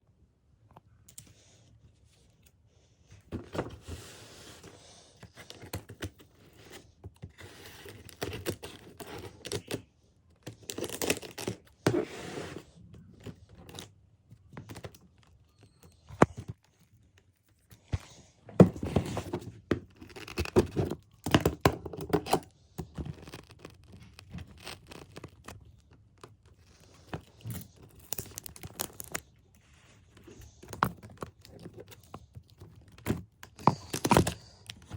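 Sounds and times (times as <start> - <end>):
package tearing and crinkling: 27.4 - 29.3.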